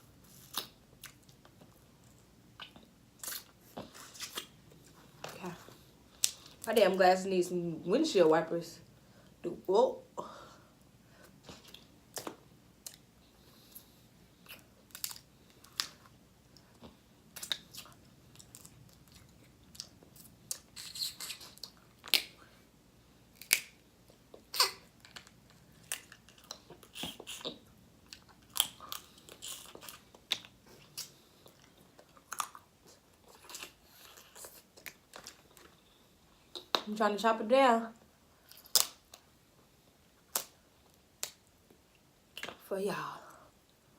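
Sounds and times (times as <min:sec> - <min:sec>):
chewing: 0:00.3 - 0:06.7, 0:23.4 - 0:36.8.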